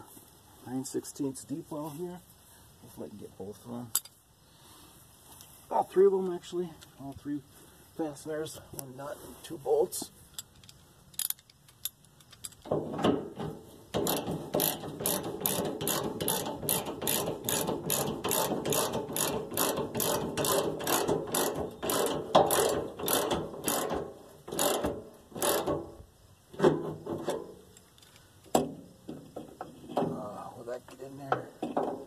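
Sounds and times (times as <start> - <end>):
socket ratchet clicking: 14.0 - 25.8.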